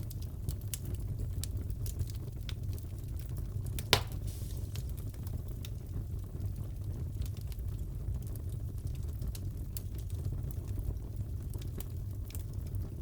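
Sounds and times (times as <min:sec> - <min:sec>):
fire crackles: 0:00.0 - 0:13.0
fireplace burning rumble: 0:00.0 - 0:13.0
loud fire pop: 0:03.8 - 0:05.2.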